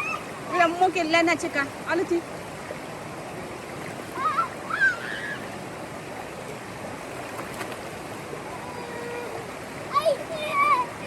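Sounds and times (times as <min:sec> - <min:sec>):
water rushing: 0:00.0 - 0:11.0.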